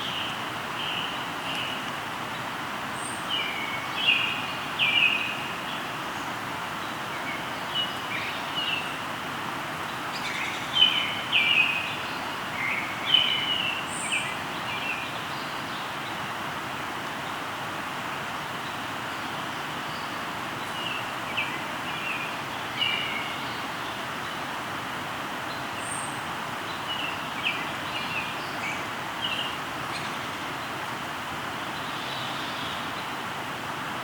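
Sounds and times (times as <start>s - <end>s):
river rushing: 0.0s - 34.0s
birds chirping: 25.5s - 31.0s.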